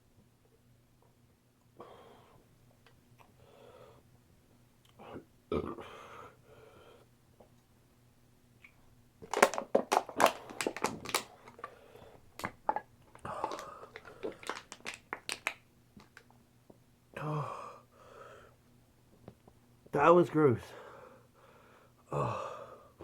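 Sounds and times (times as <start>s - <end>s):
aluminium can crinkling: 9.2s - 16.3s.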